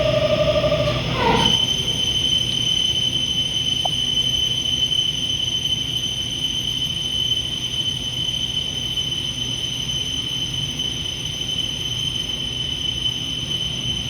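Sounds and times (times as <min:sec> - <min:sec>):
low hum: 0:00.0 - 0:04.3
milling machine whining: 0:00.0 - 0:04.8.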